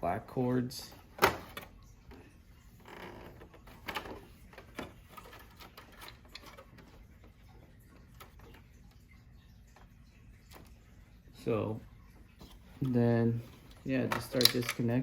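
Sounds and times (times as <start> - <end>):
cable connectors clicking: 14.0 - 15.0.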